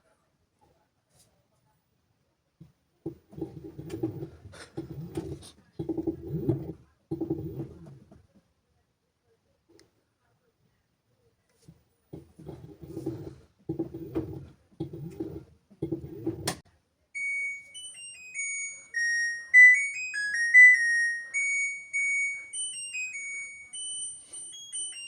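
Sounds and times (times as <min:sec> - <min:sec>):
washing machine beeping melody: 0:03.1 - 0:08.1, 0:12.4 - 0:16.6, 0:17.2 - 0:25.0.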